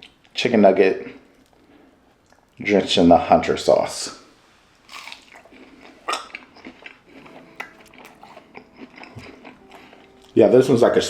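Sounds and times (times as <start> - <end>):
man chewing food: 1.2 - 2.6, 4.8 - 10.6.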